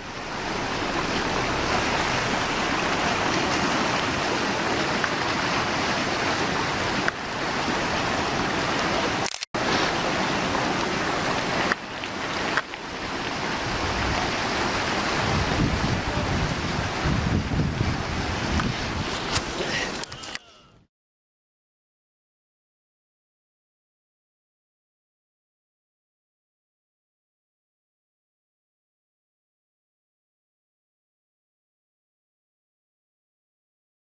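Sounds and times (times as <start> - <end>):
steady rushing noise: 0.0 - 19.7.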